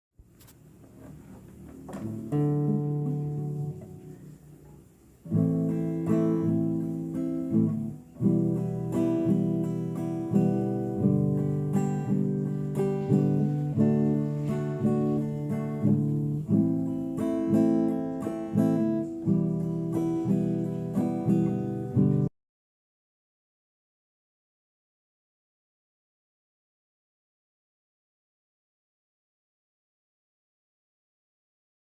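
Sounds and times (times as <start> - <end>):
acoustic guitar chords: 0.9 - 22.3.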